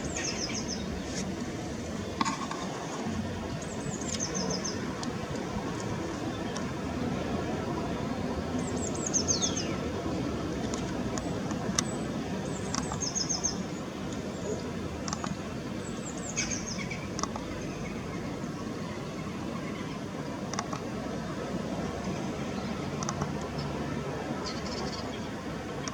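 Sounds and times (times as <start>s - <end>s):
birds chirping: 0.0s - 20.1s.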